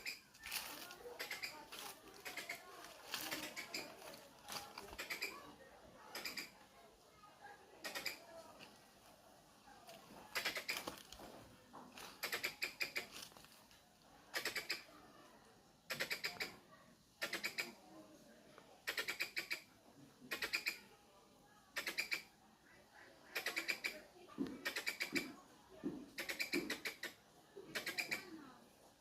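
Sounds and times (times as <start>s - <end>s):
squirrel chipping calls: 0.0s - 5.5s, 6.1s - 6.6s, 7.8s - 8.3s, 10.3s - 11.0s, 12.0s - 13.2s, 14.3s - 14.9s, 15.9s - 17.8s, 18.8s - 20.9s, 21.7s - 22.4s, 23.2s - 25.4s, 26.1s - 28.4s.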